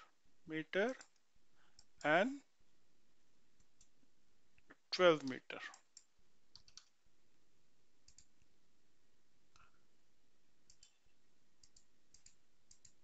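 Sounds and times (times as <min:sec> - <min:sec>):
low room hiss: 0:00.0 - 0:13.0
computer mouse clicks: 0:01.0 - 0:02.1, 0:03.6 - 0:04.0, 0:04.6 - 0:07.0, 0:08.0 - 0:08.5, 0:10.6 - 0:11.0, 0:11.6 - 0:13.0.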